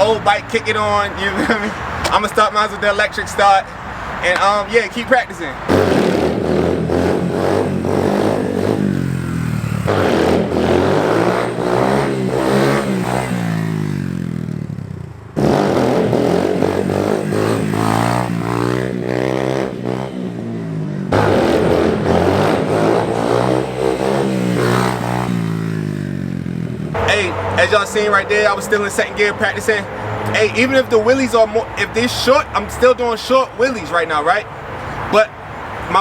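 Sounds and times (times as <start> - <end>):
dirt bike engine revving: 5.4 - 31.6.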